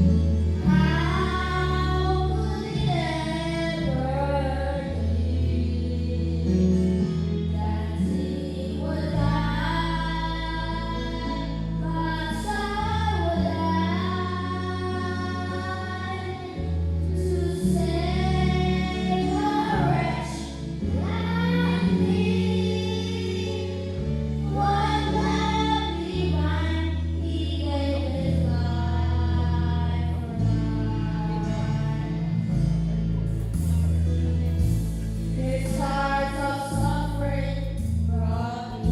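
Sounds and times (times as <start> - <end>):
instrumental accompaniment: 29.0 - 38.9.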